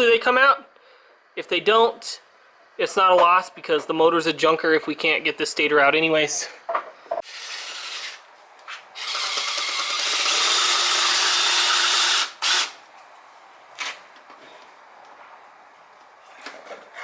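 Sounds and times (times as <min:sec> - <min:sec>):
power drill whirring: 0:07.2 - 0:08.3, 0:09.0 - 0:12.8.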